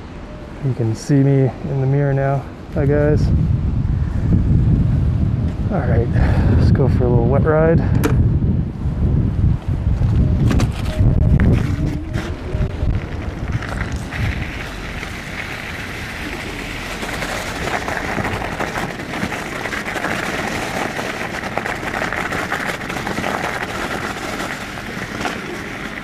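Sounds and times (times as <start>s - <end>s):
wind: 0.0s - 26.0s
bike tyres hissing on wet road: 11.4s - 26.0s
rain: 12.3s - 26.0s.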